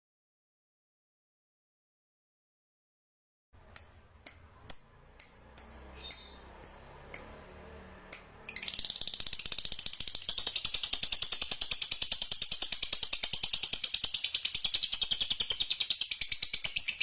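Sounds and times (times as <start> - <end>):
songbird chip notes: 4.7 - 9.5.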